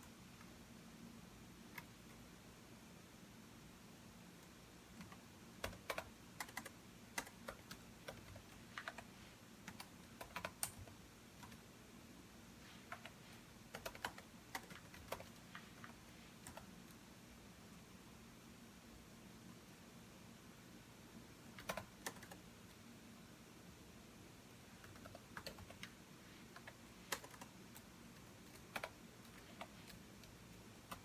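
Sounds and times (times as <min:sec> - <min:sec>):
typing on computer keyboard: 0:04.4 - 0:11.6, 0:12.8 - 0:16.7, 0:21.5 - 0:22.4, 0:24.8 - 0:31.0.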